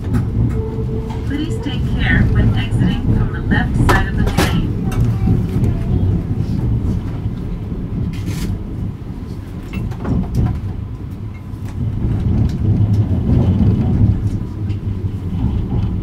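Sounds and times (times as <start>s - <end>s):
track clicks: 0.0s - 5.8s
train rumbling from on board: 0.0s - 16.0s.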